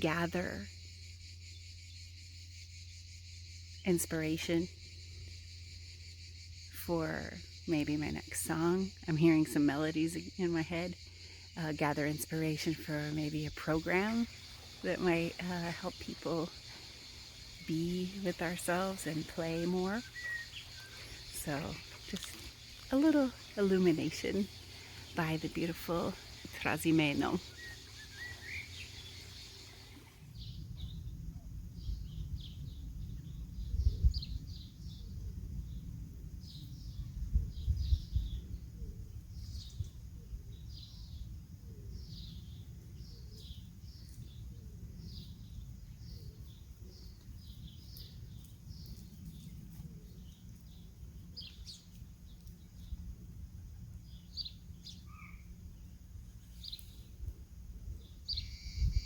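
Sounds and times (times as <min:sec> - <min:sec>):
birds chirping: 0:11.6 - 0:31.1
wind on microphone: 0:29.9 - 0:41.2, 0:56.6 - 0:59.0.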